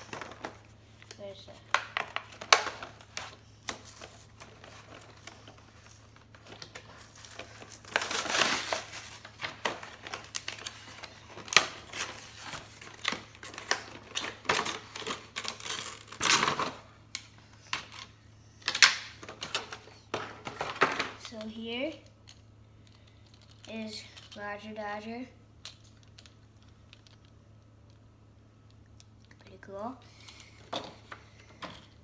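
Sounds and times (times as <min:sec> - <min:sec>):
plastic and cardboard crinkling: 0:00.0 - 0:16.9.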